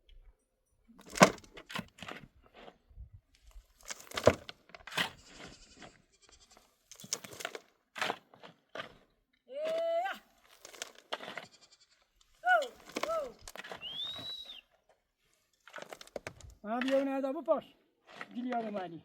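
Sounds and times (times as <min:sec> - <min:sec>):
sheep bleating: 0:05.3 - 0:06.7, 0:11.3 - 0:12.7.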